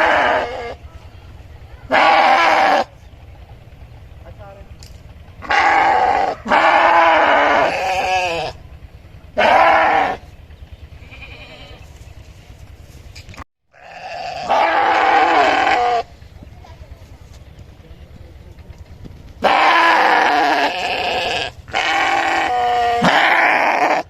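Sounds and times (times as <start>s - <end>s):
sheep bleating: 0.0s - 0.8s, 1.9s - 2.9s, 5.4s - 8.6s, 9.4s - 10.2s, 10.9s - 12.0s, 13.7s - 16.1s, 19.4s - 24.0s.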